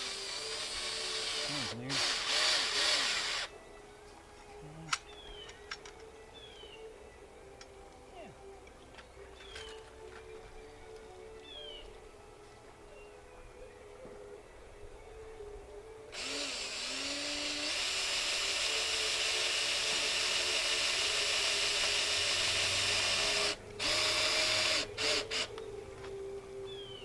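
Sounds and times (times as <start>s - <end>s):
power drill driving a screw: 0.0s - 3.5s, 16.2s - 25.6s.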